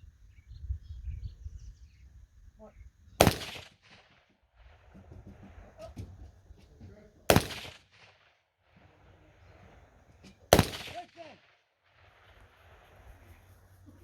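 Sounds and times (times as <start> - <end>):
gunshots with echo: 3.2 - 5.6, 7.3 - 8.4, 10.5 - 12.3.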